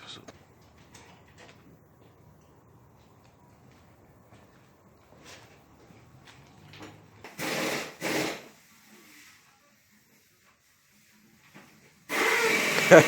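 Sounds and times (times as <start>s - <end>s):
power tool bursts: 7.3s - 8.6s, 12.1s - 13.0s.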